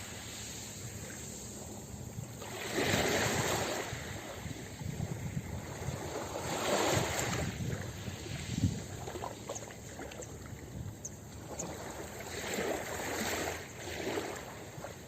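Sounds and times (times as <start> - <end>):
ocean surf breaking on beach: 0.0 - 9.4.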